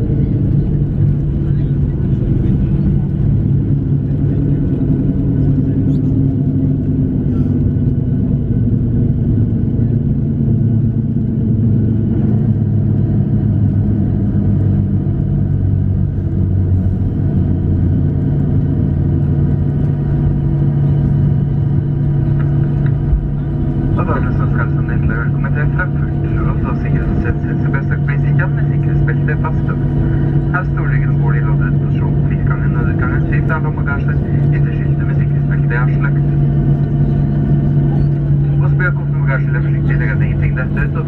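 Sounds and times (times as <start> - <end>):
aircraft rolling rumble: 0.0 - 41.0
jet engines humming: 0.0 - 41.0.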